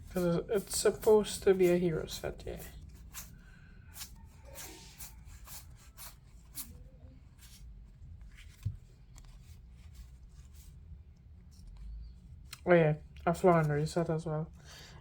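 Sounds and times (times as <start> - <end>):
cards rustling and clicking: 7.4 - 14.0.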